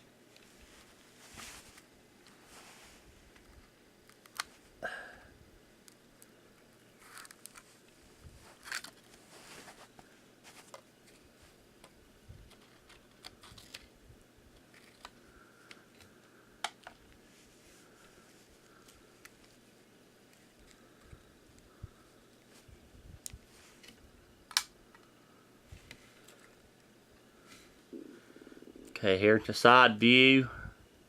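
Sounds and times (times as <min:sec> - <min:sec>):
small objects handled by hand: 0:05.8 - 0:26.9.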